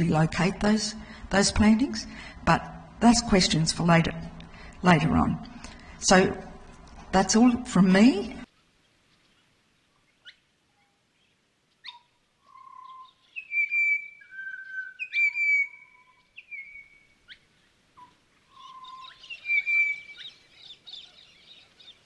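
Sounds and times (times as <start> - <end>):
birds whistling and calling: 10.2 - 22.0.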